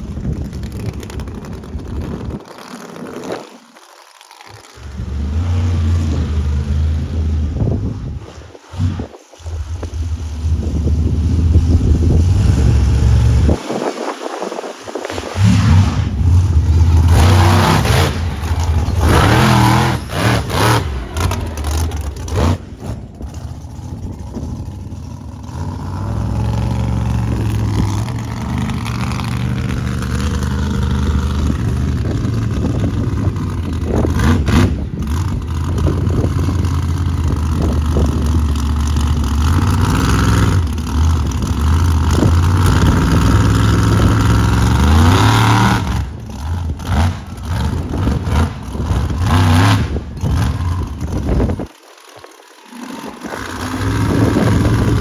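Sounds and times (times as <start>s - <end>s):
truck engine revving hard: 4.6s - 51.7s, 52.6s - 55.0s.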